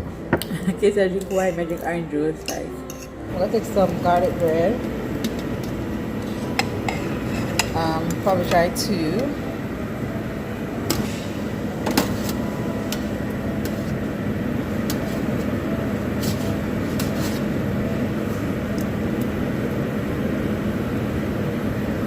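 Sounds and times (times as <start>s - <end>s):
ventilation hum: 0.0s - 22.0s
utensils and dishes clinking: 0.3s - 9.3s.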